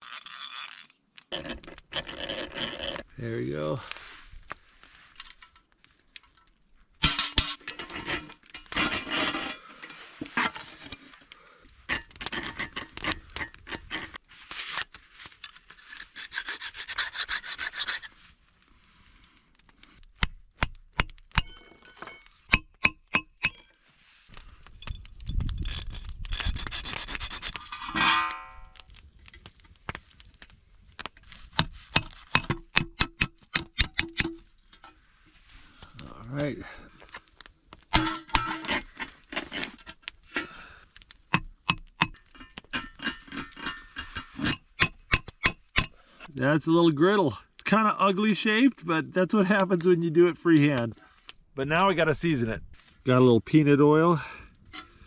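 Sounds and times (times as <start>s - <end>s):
hand tool rasping metal: 15.8s - 18.1s, 25.7s - 28.5s.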